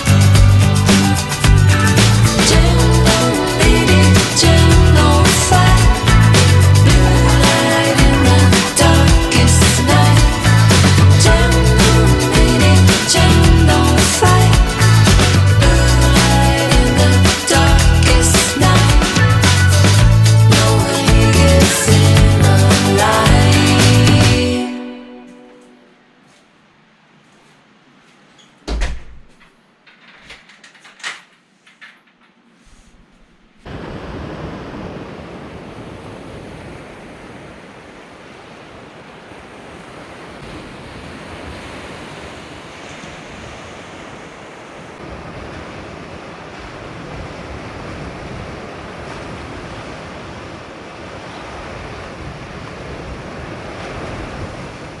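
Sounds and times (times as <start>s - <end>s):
sea surf: 0.0s - 25.8s, 33.6s - 55.0s
wind: 28.4s - 55.0s.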